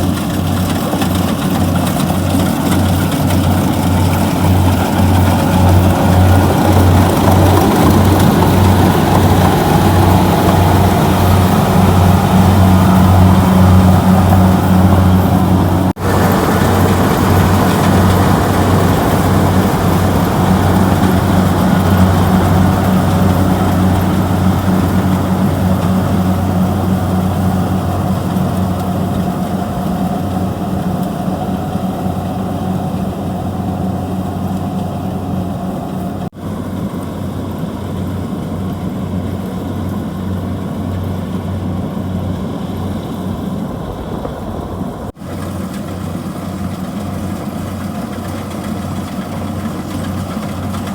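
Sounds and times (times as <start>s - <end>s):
combine harvester diesel engine: 0.0s - 50.9s.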